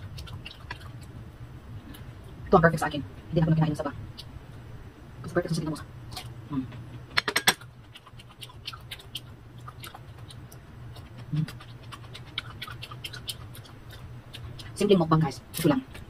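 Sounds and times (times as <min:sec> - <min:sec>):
closed-mouth hum: 0:00.0 - 0:16.0
chewing crisp mango: 0:07.6 - 0:15.6.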